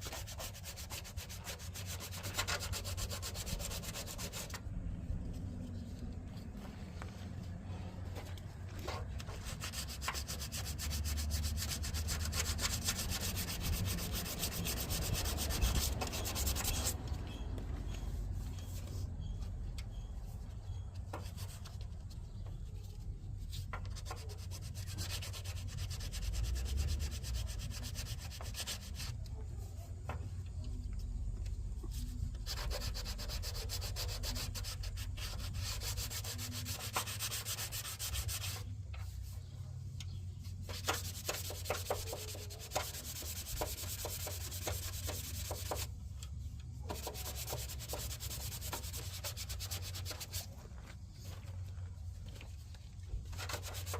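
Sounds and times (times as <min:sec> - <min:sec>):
scratchy sanding: 0:00.0 - 0:04.6, 0:09.2 - 0:17.0, 0:23.8 - 0:29.2, 0:31.9 - 0:38.7, 0:40.6 - 0:45.9, 0:46.9 - 0:50.6, 0:53.3 - 0:53.9.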